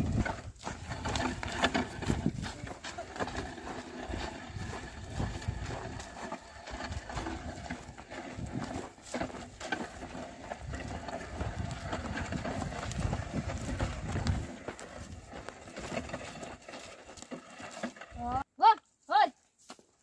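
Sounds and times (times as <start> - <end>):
hooves clopping in soil: 0.0 - 20.0.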